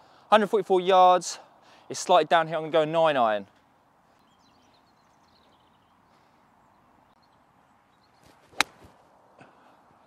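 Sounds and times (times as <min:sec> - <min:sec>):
faint bird chirps: 0:04.1 - 0:08.4.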